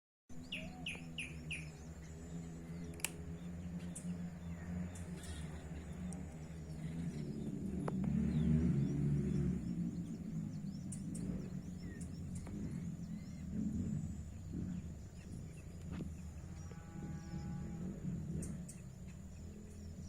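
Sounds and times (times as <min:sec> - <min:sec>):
steady low rumble: 0:00.3 - 0:20.0.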